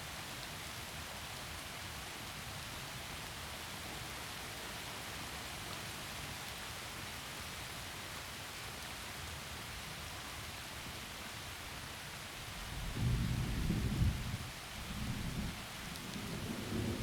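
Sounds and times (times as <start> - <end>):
heavy rain through trees: 0.0 - 17.0
low rumble of thunder: 12.5 - 17.0.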